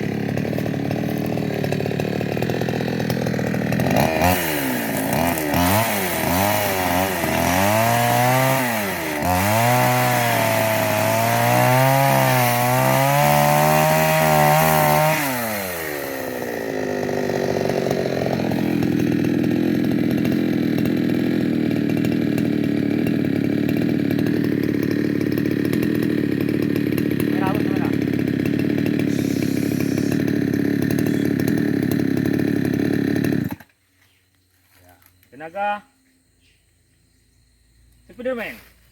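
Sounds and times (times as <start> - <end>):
chainsaw cutting wood: 0.0 - 33.8.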